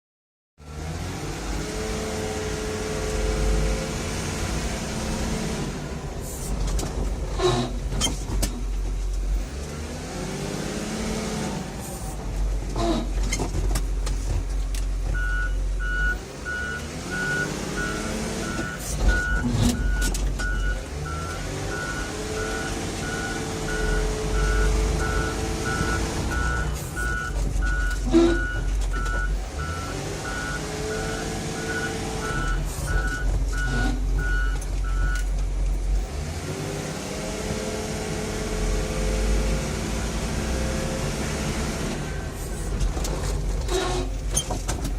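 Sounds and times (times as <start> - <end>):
large vehicle rumbling: 0.6 - 44.9
brakes squealing: 0.7 - 37.2, 37.8 - 44.9
reversing beeper: 15.2 - 35.2.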